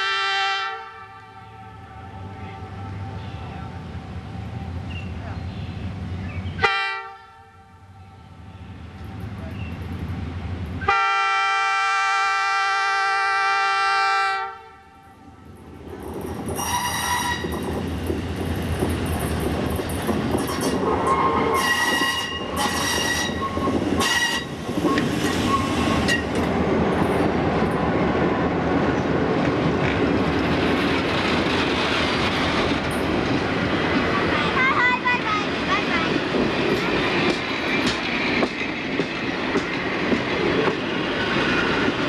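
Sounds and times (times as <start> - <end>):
locomotive air horn: 0.0 - 3.5, 6.6 - 7.8, 10.8 - 15.0, 16.6 - 17.5, 21.0 - 24.5
train wheels rumbling on rails: 8.3 - 13.9, 15.0 - 42.0.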